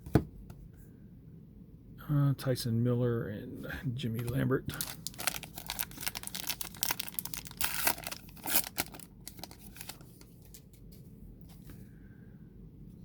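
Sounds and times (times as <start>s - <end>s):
wrapper crinkling and tearing: 4.7s - 10.7s.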